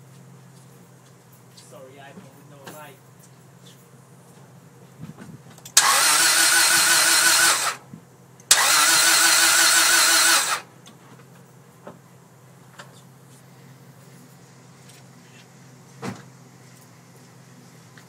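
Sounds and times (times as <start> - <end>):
starter motor cranking engine: 5.7 - 7.8, 8.5 - 10.7.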